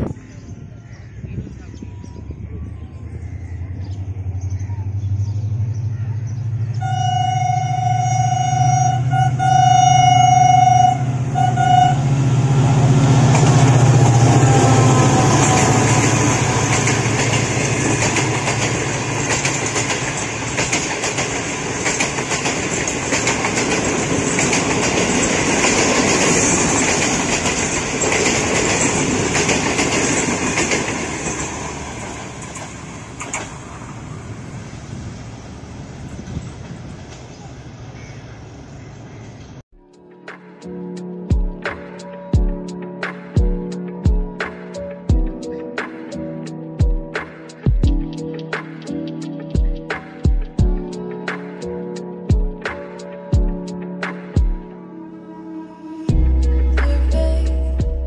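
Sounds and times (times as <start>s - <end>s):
locomotive engine rumbling: 0.2s - 39.6s
train horn: 6.8s - 12.6s
coaches clattering over rail joints: 15.4s - 33.6s.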